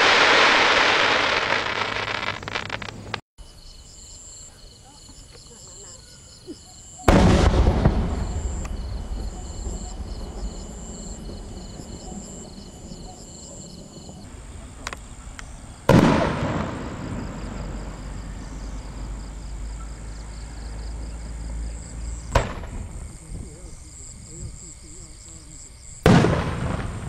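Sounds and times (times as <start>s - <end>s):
firework booms: 0.0s - 3.2s, 7.0s - 19.6s, 22.2s - 24.6s, 26.0s - 27.0s
firework sharp crack: 0.0s - 3.2s, 7.1s - 12.0s, 14.8s - 18.2s, 22.3s - 23.1s, 26.0s - 27.0s.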